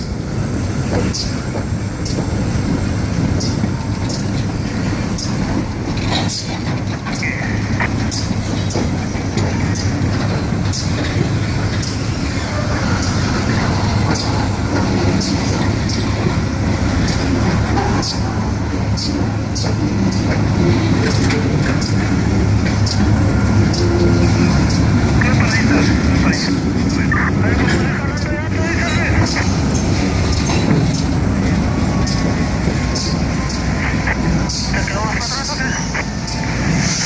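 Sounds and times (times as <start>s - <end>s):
diesel locomotive engine rumble: 0.0s - 37.0s
wheels clicking over rail joints: 0.9s - 25.0s.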